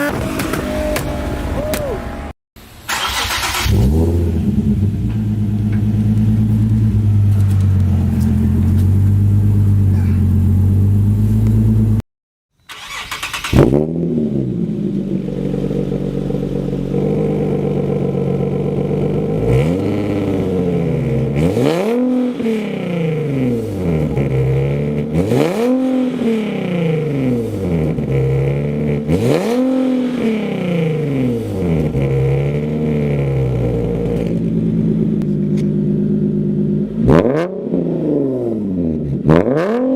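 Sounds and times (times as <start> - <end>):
car engine revving: 0.0 - 12.0, 12.7 - 39.9.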